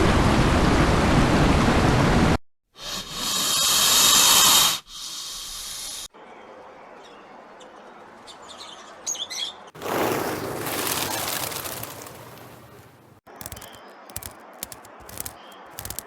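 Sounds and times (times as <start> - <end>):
high bird chirps: 13.3 - 16.0.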